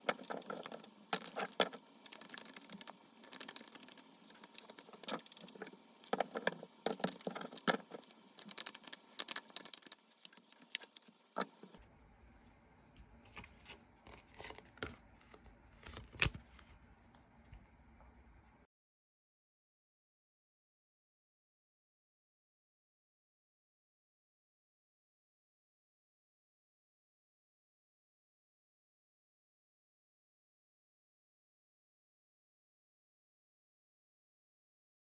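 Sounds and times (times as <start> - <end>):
cards being shuffled: 0.0 - 11.8.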